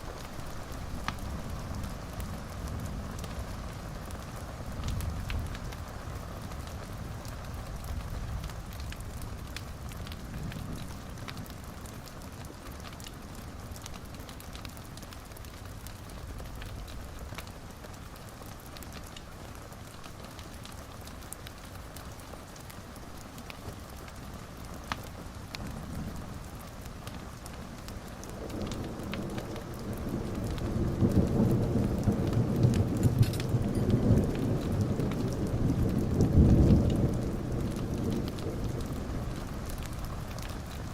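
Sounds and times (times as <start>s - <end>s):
small crackles: 0.0s - 40.9s
steady rain: 0.0s - 40.9s
thunder rumbling: 28.2s - 40.9s.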